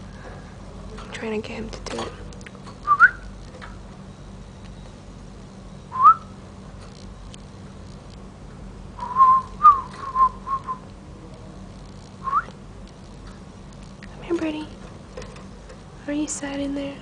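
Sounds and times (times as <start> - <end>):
person whistling: 6.0 - 6.3, 9.0 - 10.8.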